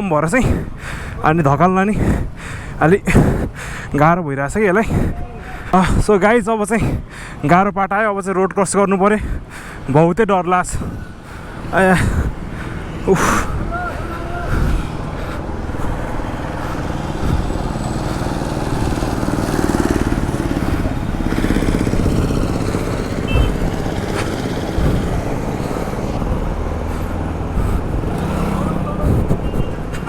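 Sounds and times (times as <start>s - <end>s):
motorcycles passing: 10.5s - 30.0s.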